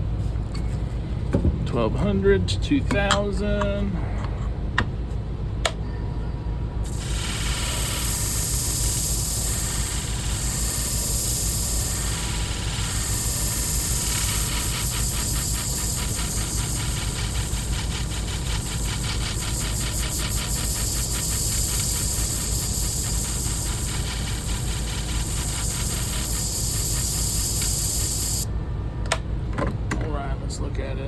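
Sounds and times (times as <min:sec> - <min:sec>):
high hiss: 0:06.9 - 0:28.5
sharpening machine motor humming: 0:06.9 - 0:28.5.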